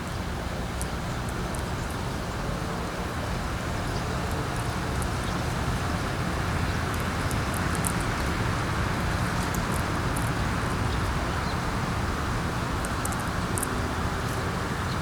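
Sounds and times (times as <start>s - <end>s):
wind rumbling and hissing: 0.0s - 15.0s
small birds chirping: 3.5s - 15.0s.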